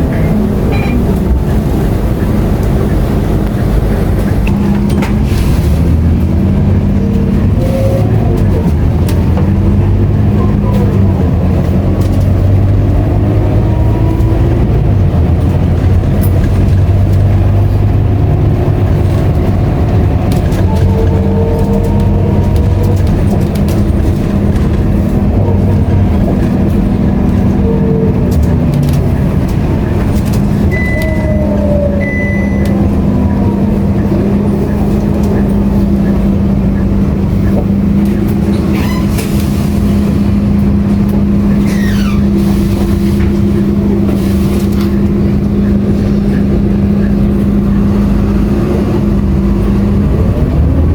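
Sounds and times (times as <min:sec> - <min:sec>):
bus diesel engine running: 0:00.0 - 0:50.9
short high beeps: 0:30.7 - 0:31.4.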